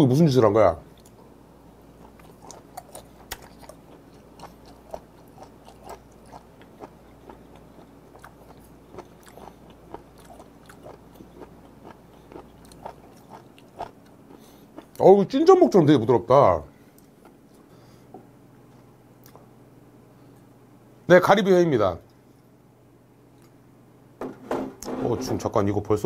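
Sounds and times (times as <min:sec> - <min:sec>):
wet chewing clicks and smacks: 0:02.0 - 0:15.0.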